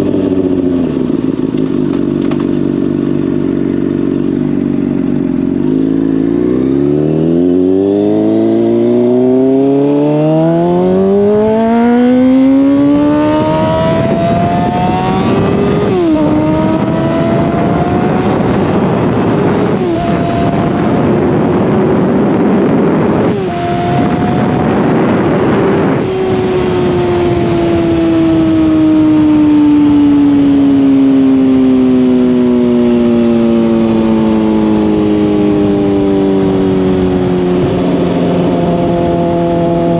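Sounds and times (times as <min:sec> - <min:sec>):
motorcycle engine accelerating: 0:00.0 - 0:39.9
wind rushing: 0:05.8 - 0:30.8.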